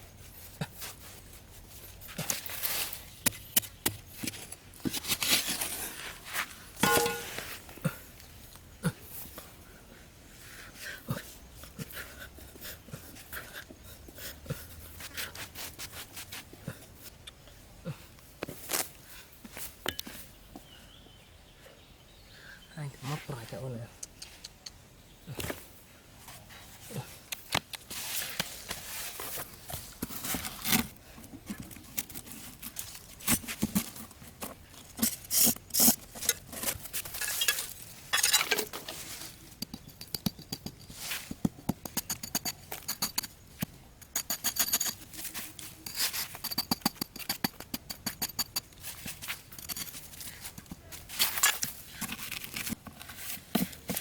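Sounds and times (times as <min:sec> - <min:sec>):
hands handling materials: 0:27.2 - 0:54.0.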